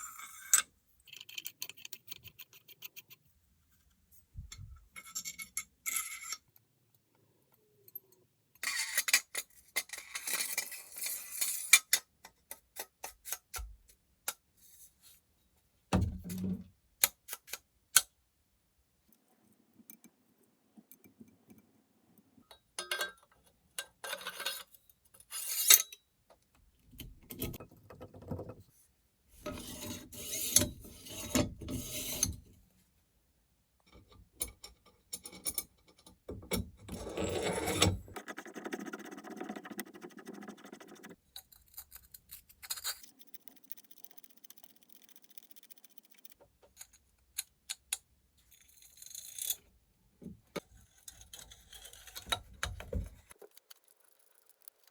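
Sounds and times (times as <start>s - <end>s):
filing and scraping metal: 8.6s - 12.0s, 24.1s - 25.9s, 29.4s - 32.5s, 36.9s - 43.6s, 50.6s - 54.9s.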